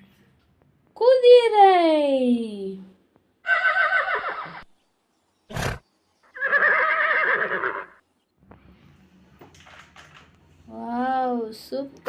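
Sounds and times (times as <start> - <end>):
horse neighing: 3.4 - 4.7, 5.5 - 8.0.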